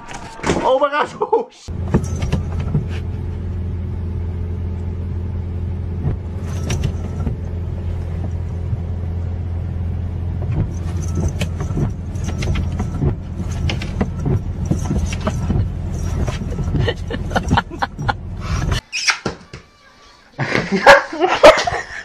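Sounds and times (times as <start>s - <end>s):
low engine drone: 1.7s - 18.8s.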